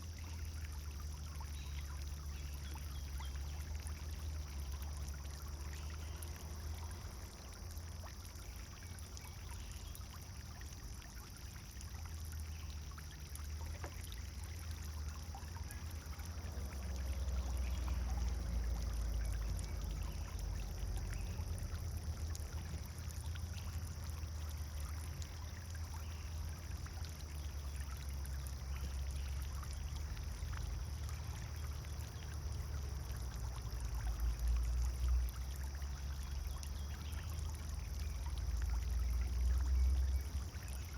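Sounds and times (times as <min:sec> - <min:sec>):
fountain water splashing: 0:00.0 - 0:40.9.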